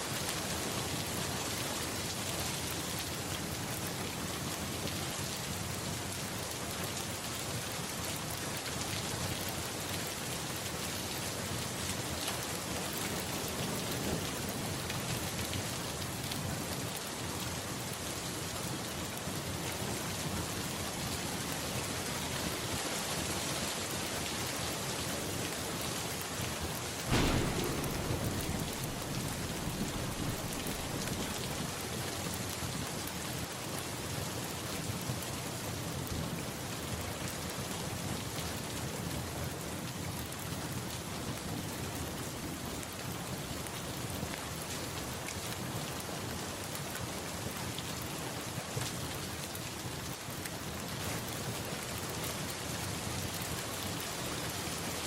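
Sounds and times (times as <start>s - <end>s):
steady rain: 0.0s - 55.0s
thunder clap: 27.0s - 31.8s.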